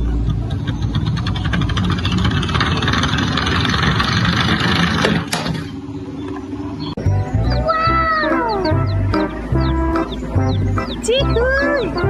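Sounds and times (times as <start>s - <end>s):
toy vehicle rattling rumble: 0.0s - 5.9s.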